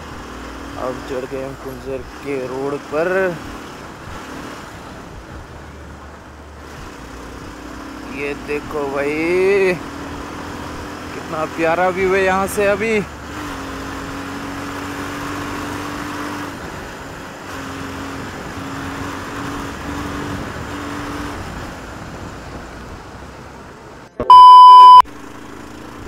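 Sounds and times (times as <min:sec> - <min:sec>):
wind and road noise: 0:00.0 - 0:26.0
loud electronic beep: 0:24.2 - 0:25.0.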